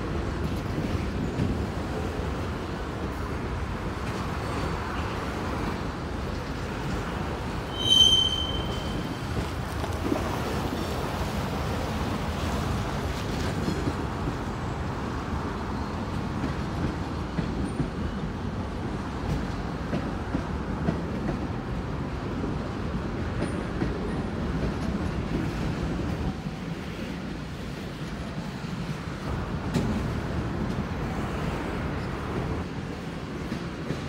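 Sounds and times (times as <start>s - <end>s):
freight train wheels rumbling: 0.0s - 34.0s
high wheel squeal: 7.7s - 9.3s.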